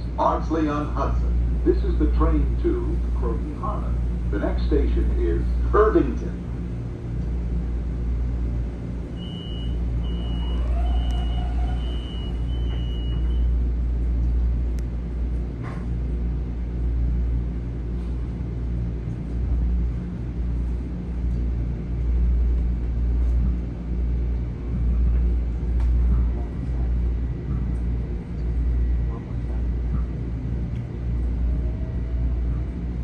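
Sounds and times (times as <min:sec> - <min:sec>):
train interior rumble: 0:00.0 - 0:33.0
short high beeps: 0:09.2 - 0:13.5.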